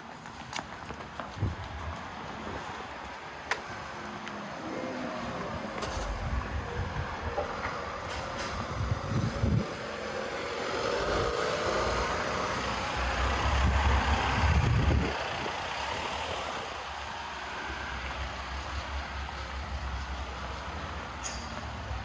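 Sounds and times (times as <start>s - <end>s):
street noise: 0.0s - 22.0s
vehicle engine passing: 4.6s - 17.0s.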